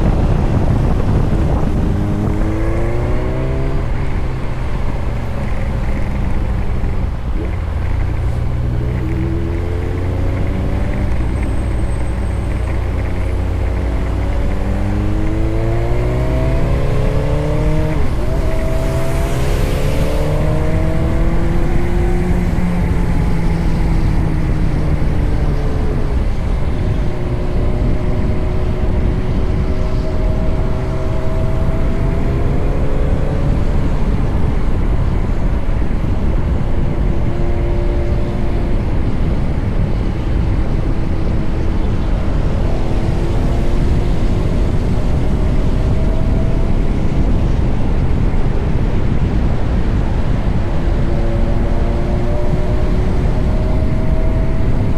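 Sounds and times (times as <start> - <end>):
heavy low rumble: 0.0 - 54.9
motorcycle engine running: 3.7 - 36.5.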